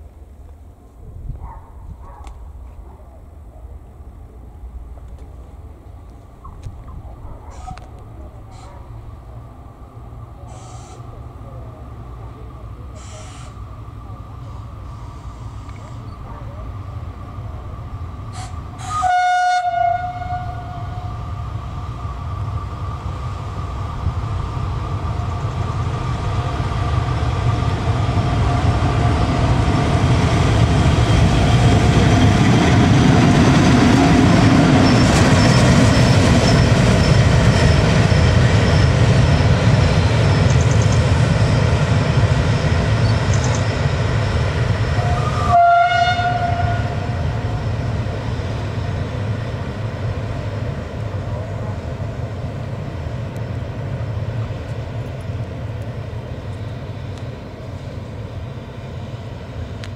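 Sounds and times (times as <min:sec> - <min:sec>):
train rumble: 0:00.0 - 0:59.9
locomotive horn blast: 0:18.4 - 0:21.1, 0:45.0 - 0:47.2.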